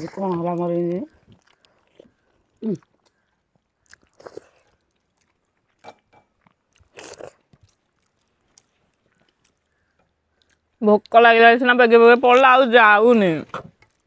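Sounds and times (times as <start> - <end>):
people chewing food: 0.0 - 14.0.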